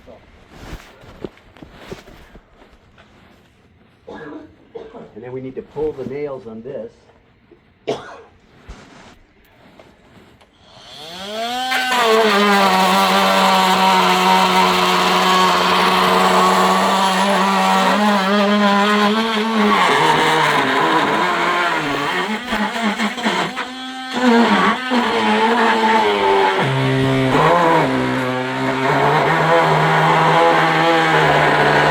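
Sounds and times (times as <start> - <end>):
chainsaw cutting timber: 10.6 - 31.9.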